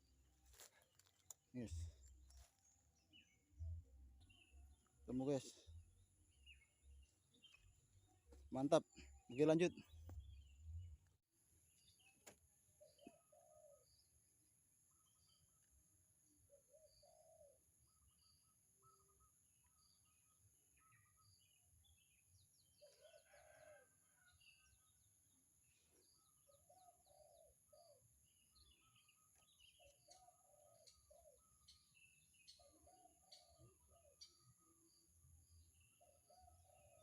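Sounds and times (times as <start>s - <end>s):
bird cooing: 12.8s - 14.0s, 16.5s - 17.6s, 26.5s - 28.0s, 29.8s - 31.8s, 32.4s - 34.4s.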